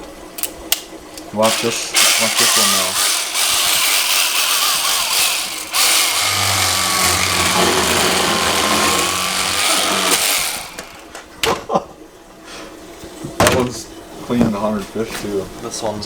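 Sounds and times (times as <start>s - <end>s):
electric fillet knife motor whine: 1.5s - 11.3s.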